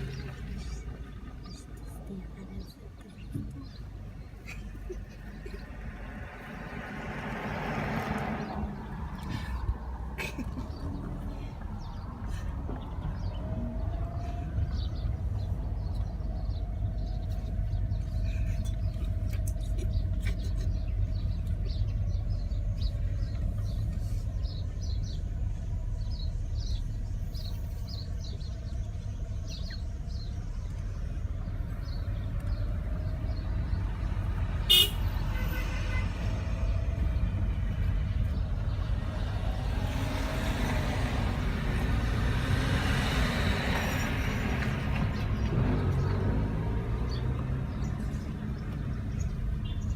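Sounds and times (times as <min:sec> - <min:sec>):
car road and wind rumble: 0:00.0 - 0:49.9
car horn toot: 0:34.7 - 0:36.2.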